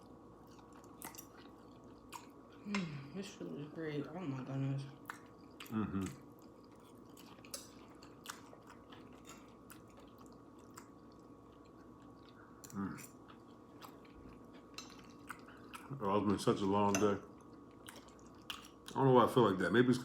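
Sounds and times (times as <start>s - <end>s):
faint steady hum: 0.0s - 20.0s
close-up chewing: 0.4s - 2.8s, 5.0s - 19.0s
person humming mm: 5.7s - 6.2s.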